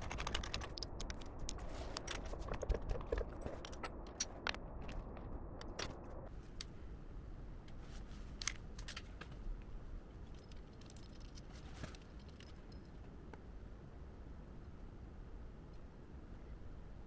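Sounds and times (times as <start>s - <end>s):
low steady hum: 0.0s - 17.0s
small metal parts clinking: 10.2s - 13.0s.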